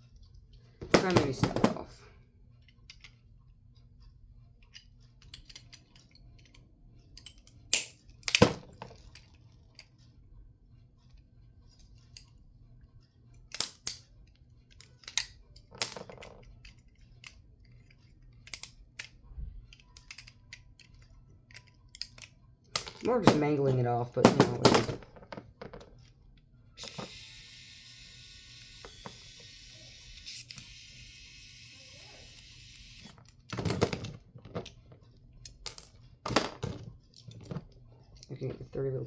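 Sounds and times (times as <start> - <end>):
plastic clicks and snaps: 7.2 - 9.9, 14.7 - 23.1.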